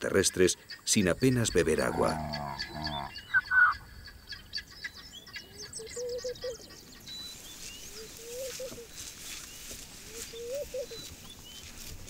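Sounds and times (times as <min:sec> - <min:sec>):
high bird chirps: 0:01.0 - 0:08.5
low warbling bird call: 0:01.2 - 0:06.7.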